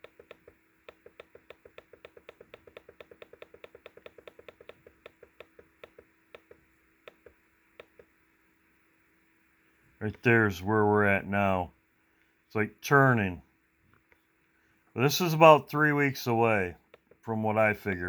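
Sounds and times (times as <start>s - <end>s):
rapid light clicks: 0.0s - 8.1s.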